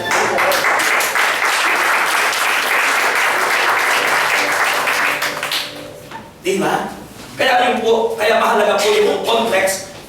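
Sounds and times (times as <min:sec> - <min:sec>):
crowd applauding: 0:00.0 - 0:05.7.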